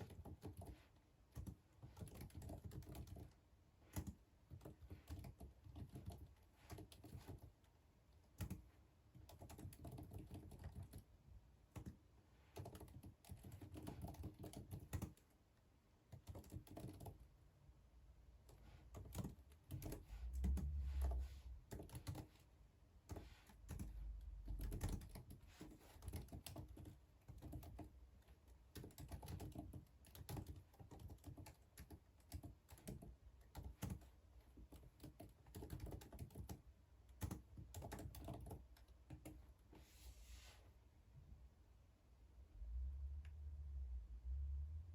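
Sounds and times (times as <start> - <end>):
computer keyboard typing: 0.0 - 7.6, 8.2 - 11.1, 11.7 - 15.3, 16.1 - 17.3, 18.4 - 39.5.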